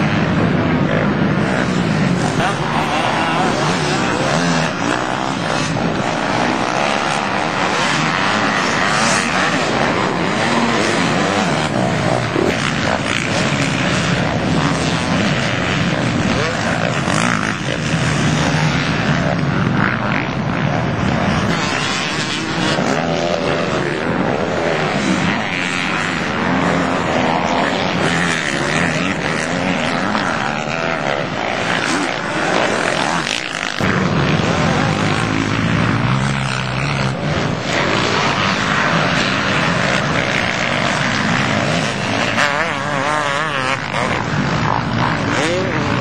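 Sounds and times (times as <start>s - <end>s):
dirt bike engines racing: 0.0s - 46.0s.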